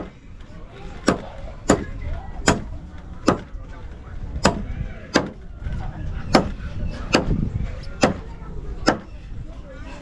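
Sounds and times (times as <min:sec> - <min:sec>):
hammer striking metal roofing: 0:01.0 - 0:03.5.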